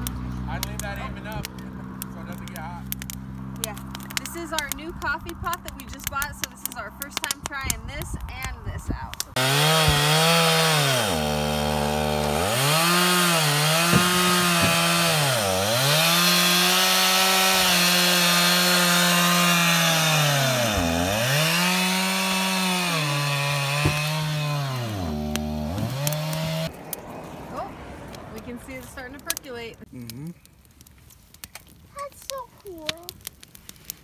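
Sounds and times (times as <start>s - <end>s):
chainsaw running: 9.3s - 26.7s.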